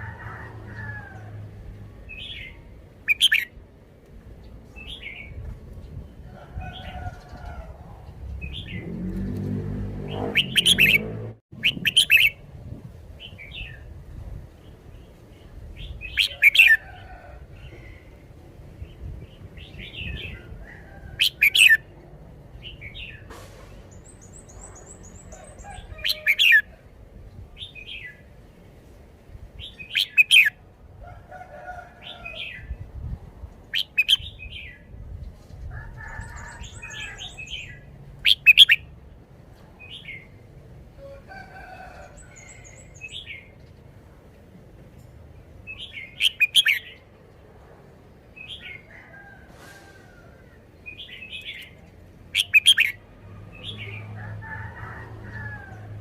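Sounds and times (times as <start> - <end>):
bird whistling phrases: 10.3 - 11.0.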